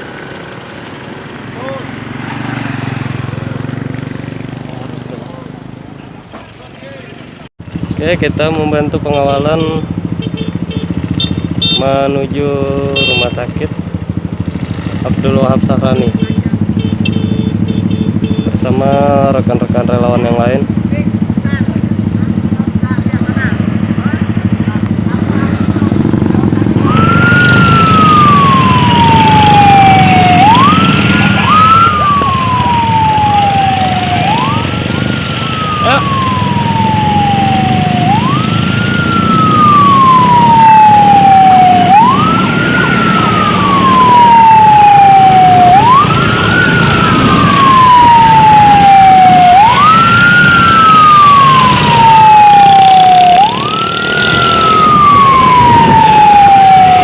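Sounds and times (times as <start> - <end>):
vehicle engine and road noise: 0.0 - 57.0
emergency siren wailing: 8.0 - 14.4, 21.9 - 57.0.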